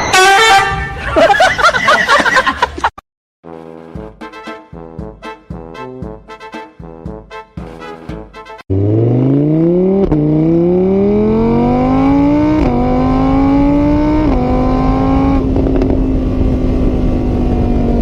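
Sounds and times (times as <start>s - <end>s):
car engine accelerating: 8.7s - 18.0s.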